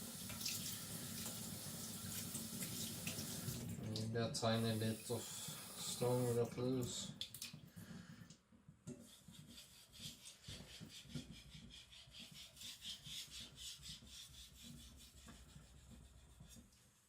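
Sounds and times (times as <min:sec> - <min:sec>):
knife scraping on whetstone: 0:09.0 - 0:16.6.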